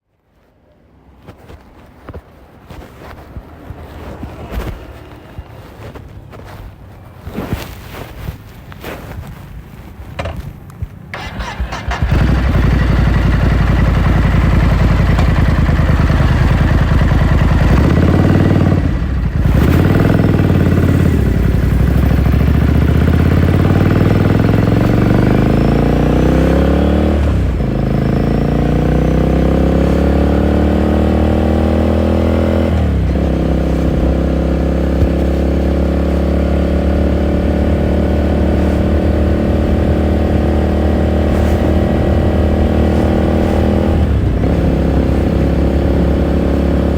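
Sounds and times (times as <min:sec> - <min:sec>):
motorcycle engine accelerating: 0:11.1 - 0:46.9.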